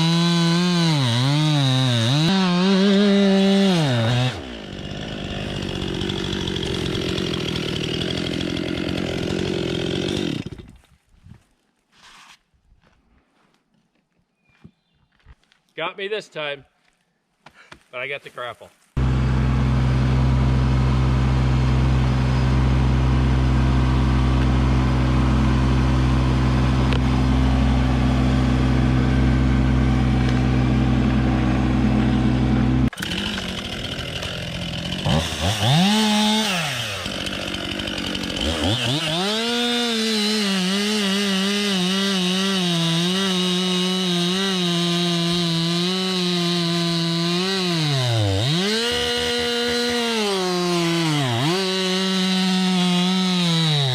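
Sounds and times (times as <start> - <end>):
chainsaw cutting wood: 0.0 - 10.9, 19.0 - 53.9
tractor diesel engine running: 19.0 - 35.2.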